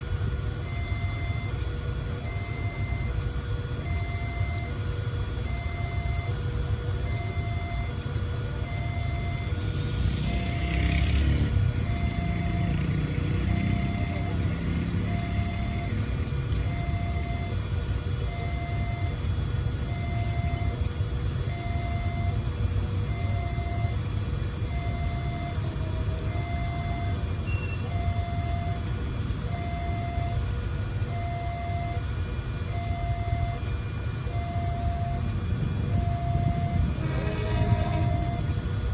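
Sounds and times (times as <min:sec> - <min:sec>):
level crossing alarm two-tone: 0:00.7 - 0:01.6, 0:02.3 - 0:03.1, 0:03.8 - 0:04.8, 0:05.5 - 0:06.4, 0:07.1 - 0:08.0, 0:08.6 - 0:09.6, 0:13.4 - 0:16.1, 0:16.7 - 0:17.6, 0:18.3 - 0:19.2, 0:19.9 - 0:20.8, 0:21.5 - 0:22.4, 0:23.1 - 0:24.0, 0:26.3 - 0:27.2, 0:27.9 - 0:28.8, 0:29.5 - 0:30.4, 0:31.1 - 0:32.1, 0:32.7 - 0:33.6, 0:34.3 - 0:35.3, 0:35.9 - 0:38.5
low rumble: 0:34.3 - 0:38.9.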